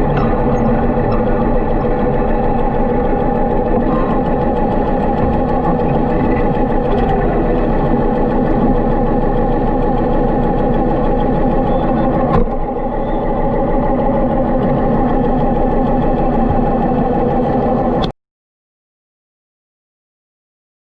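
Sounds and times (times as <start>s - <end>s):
motorcycle engine running: 0.0s - 18.1s.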